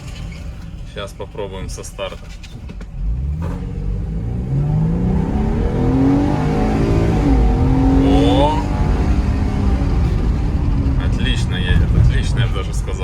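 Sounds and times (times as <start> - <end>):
van engine accelerating hard: 2.7 - 13.0.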